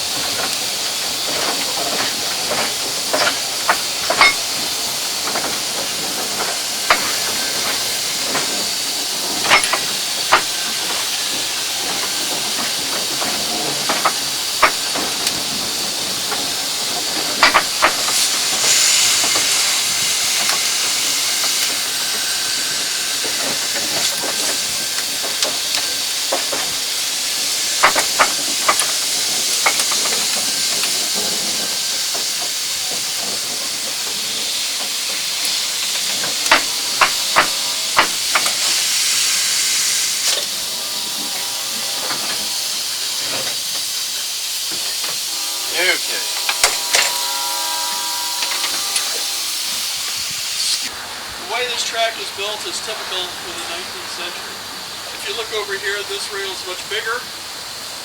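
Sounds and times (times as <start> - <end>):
steam hissing: 0.0 - 58.0
sharp metallic clicks and knocks: 9.4 - 15.4, 17.4 - 19.6, 27.8 - 29.0, 35.4 - 38.6, 46.4 - 47.2.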